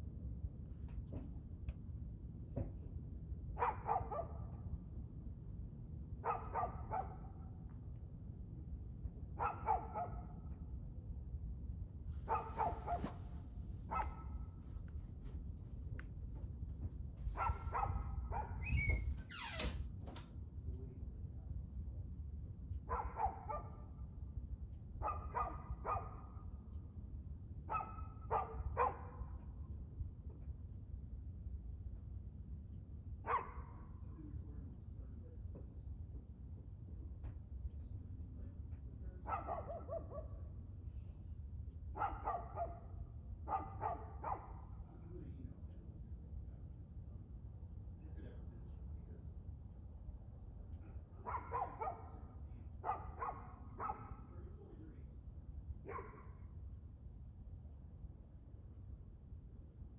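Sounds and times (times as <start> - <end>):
dog barking: 3.6 - 4.6, 6.2 - 7.4, 9.4 - 10.4, 12.3 - 13.3, 13.9 - 14.6, 17.4 - 18.6, 22.9 - 23.9, 25.0 - 26.4, 27.7 - 29.4, 33.3 - 33.9, 39.2 - 40.4, 42.0 - 44.7, 51.2 - 54.3, 55.8 - 56.4
steady low rumble: 4.2 - 19.1, 20.4 - 39.3, 40.0 - 59.9.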